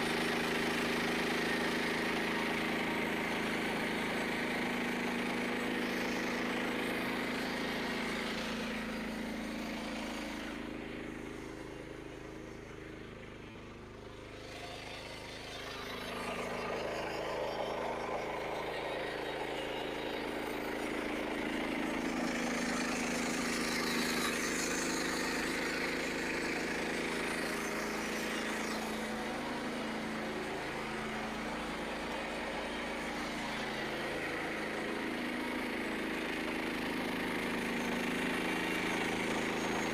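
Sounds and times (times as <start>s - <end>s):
small gas engine running: 0.0s - 39.9s
band saw blade cutting log: 14.4s - 39.9s.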